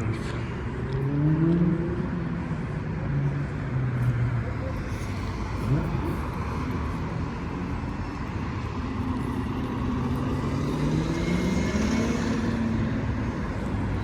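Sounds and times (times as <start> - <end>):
low traffic rumble: 0.0 - 14.0
motorcycle engine accelerating: 10.2 - 12.8.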